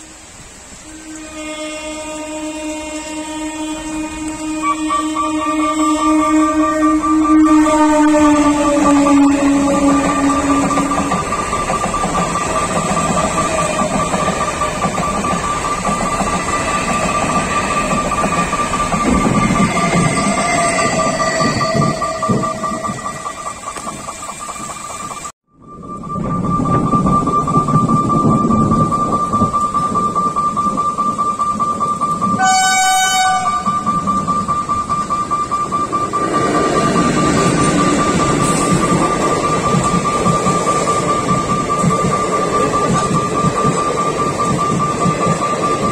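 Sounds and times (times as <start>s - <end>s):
train horn blast: 0.0s - 11.2s, 32.4s - 33.9s
train wheels rushing on rails: 0.0s - 45.9s
low held tone: 0.8s - 45.9s
thin squealing tones: 1.0s - 45.9s.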